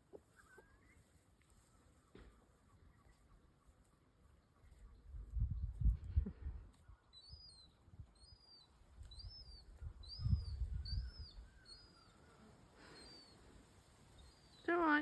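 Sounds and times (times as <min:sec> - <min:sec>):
bird chirping: 0:06.8 - 0:13.4, 0:14.1 - 0:15.0.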